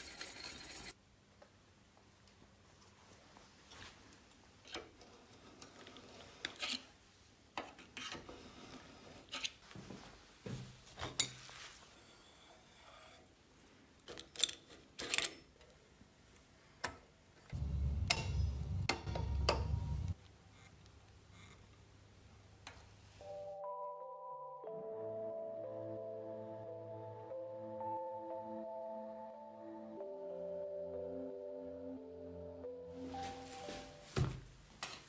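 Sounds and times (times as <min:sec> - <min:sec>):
low mechanical rumble: 0:17.6 - 0:20.2.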